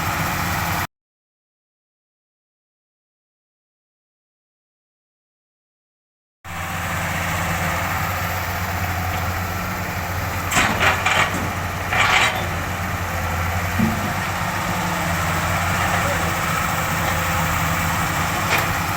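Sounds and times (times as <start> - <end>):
excavator diesel engine idling: 0.0 - 0.9, 6.5 - 18.9.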